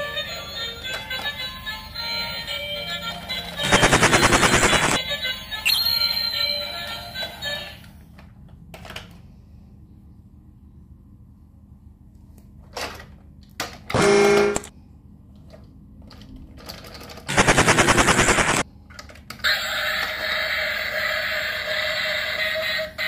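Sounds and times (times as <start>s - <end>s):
toy electronic music: 0.0s - 7.8s
toy motor and gears rattling: 0.1s - 6.7s, 16.1s - 23.0s
short electronic sound: 5.7s - 6.3s.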